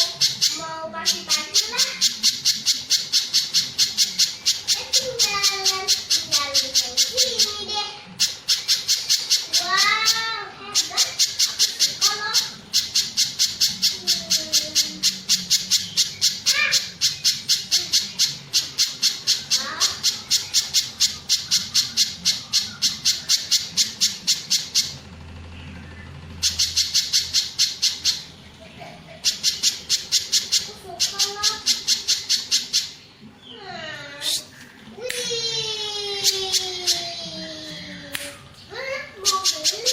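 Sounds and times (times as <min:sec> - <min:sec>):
bird calling in sharp high chips: 0:00.0 - 0:25.0, 0:26.3 - 0:28.4, 0:29.1 - 0:33.6.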